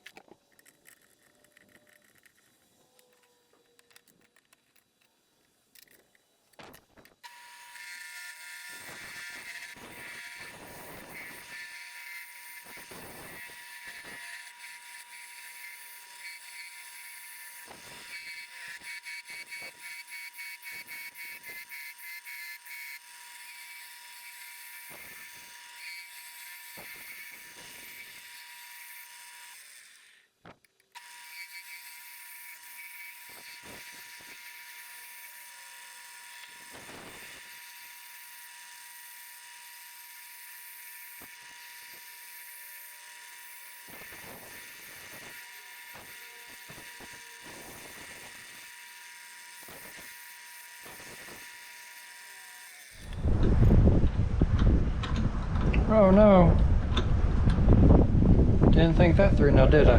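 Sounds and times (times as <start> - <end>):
wood lathe whining: 5.2 - 53.9.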